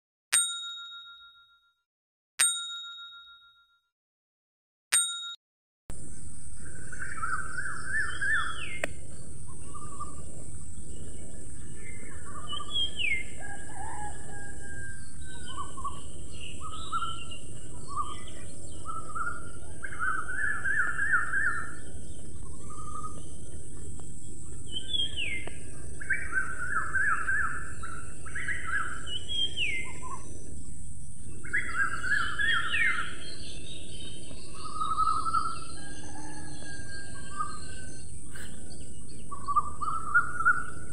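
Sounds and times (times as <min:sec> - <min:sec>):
birds chirping and calling: 0:06.0 - 0:40.9
steady background hiss: 0:15.1 - 0:35.8.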